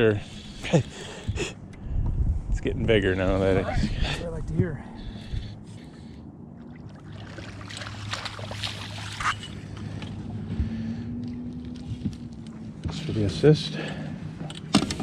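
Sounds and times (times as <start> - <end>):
boat motor humming: 3.1 - 15.0
fish splashing: 6.6 - 10.2.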